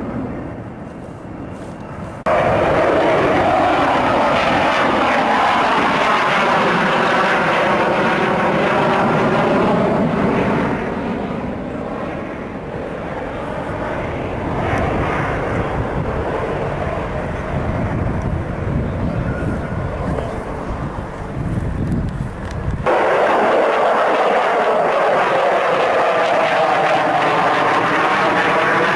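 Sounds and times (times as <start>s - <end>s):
jet fighter flying past: 0.0s - 28.9s.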